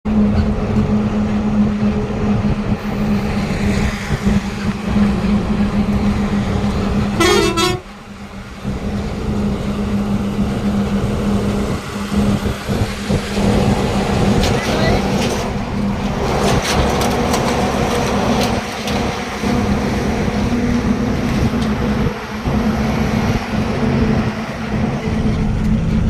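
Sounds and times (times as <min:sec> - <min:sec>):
truck engine humming: 0:00.1 - 0:26.0
truck horn blast: 0:07.1 - 0:08.0.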